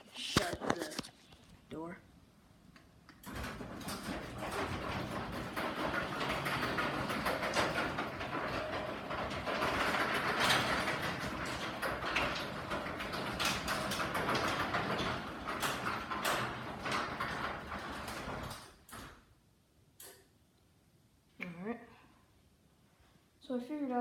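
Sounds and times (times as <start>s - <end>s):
garage door opener running: 3.2s - 19.3s
rollers rattling along tracks: 3.3s - 18.7s.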